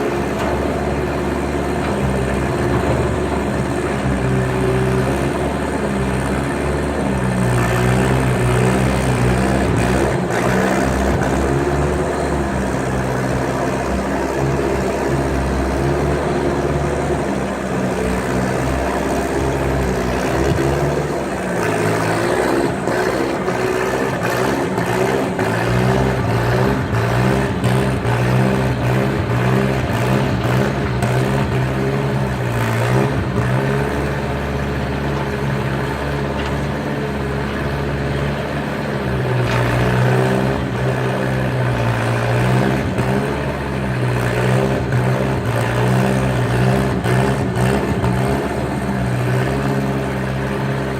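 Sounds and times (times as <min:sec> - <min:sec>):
knocks and clatter: 0:00.0 - 0:04.9
skid steer engine under load: 0:00.0 - 0:50.9.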